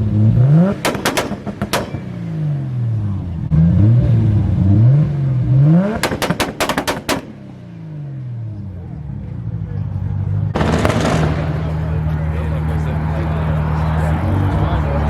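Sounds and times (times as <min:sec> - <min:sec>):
loud exhaust bangs: 0:00.0 - 0:04.5, 0:05.6 - 0:08.8, 0:10.5 - 0:13.2
car engine revving: 0:00.0 - 0:08.9, 0:10.6 - 0:15.0.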